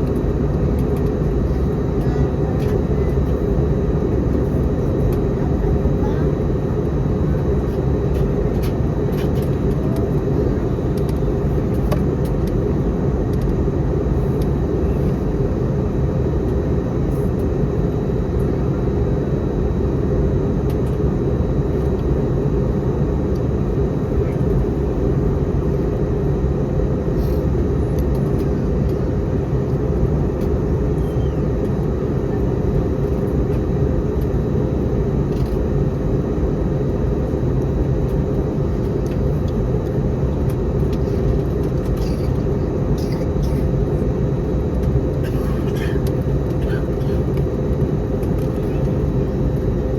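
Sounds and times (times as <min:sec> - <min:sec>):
airliner cabin rumble: 0:00.0 - 0:49.9.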